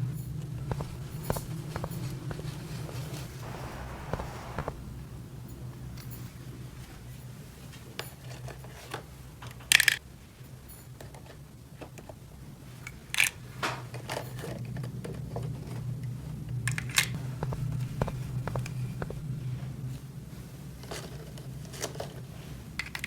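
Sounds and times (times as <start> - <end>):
steady low hum: 0.0 - 5.6, 17.2 - 20.0.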